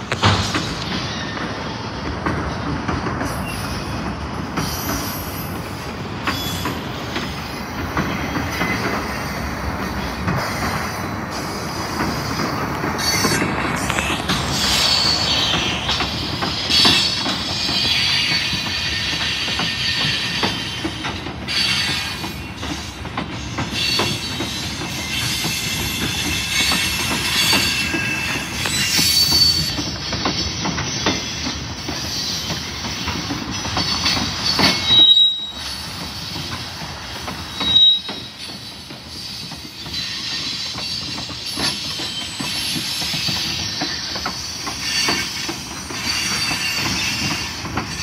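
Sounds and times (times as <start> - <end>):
steel wheels rumbling on rail: 0.0 - 48.0
high wheel squeal: 4.6 - 6.8, 10.0 - 22.7, 23.7 - 36.6, 37.5 - 48.0.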